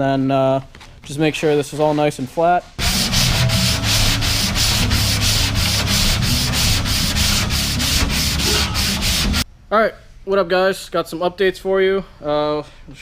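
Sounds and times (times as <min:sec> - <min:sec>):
sandpaper scratching car body: 0:02.8 - 0:09.4.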